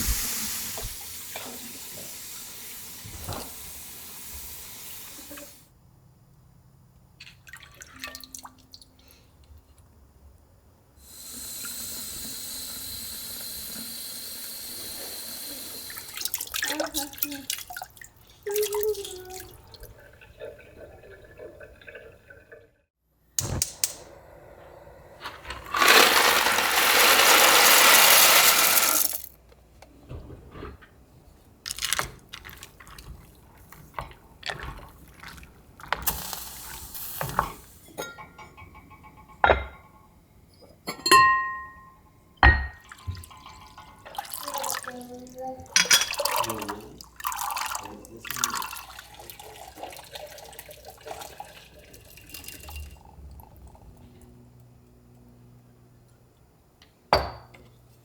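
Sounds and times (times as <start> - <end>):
water running from a tap: 0.0 - 5.6, 11.0 - 22.5, 42.8 - 53.7
glass and containers clinking: 37.2 - 40.1, 40.8 - 44.8, 45.6 - 54.0, 57.1 - 57.6.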